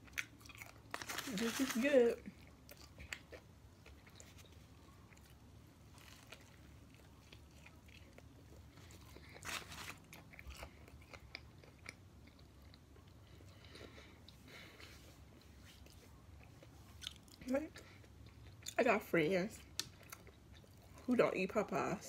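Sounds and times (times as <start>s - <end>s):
person chewing: 0.0s - 1.3s, 2.3s - 18.8s, 19.7s - 21.0s.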